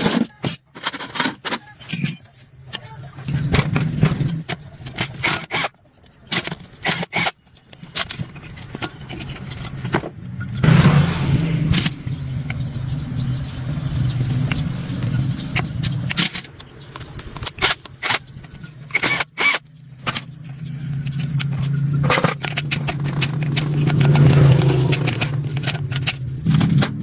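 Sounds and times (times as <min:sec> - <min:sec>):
motor humming: 0:09.4 - 0:27.0
sharp metallic clicks and knocks: 0:15.5 - 0:27.0.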